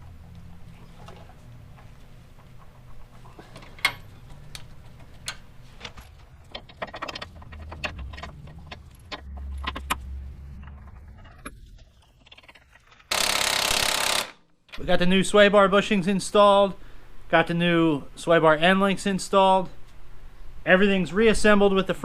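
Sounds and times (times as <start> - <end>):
metal wrenches clinking: 3.4 - 4.3, 5.8 - 10.0.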